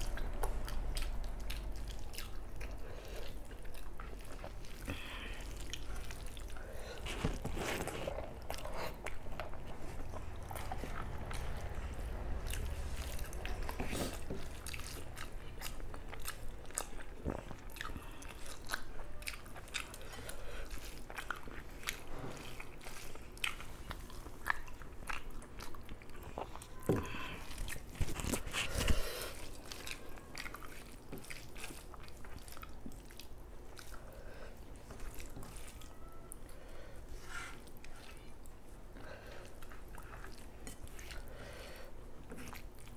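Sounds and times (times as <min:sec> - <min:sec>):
chewing with wet clicks: 0:00.0 - 0:36.7, 0:37.6 - 0:42.9
fingers mixing rice: 0:26.7 - 0:36.2.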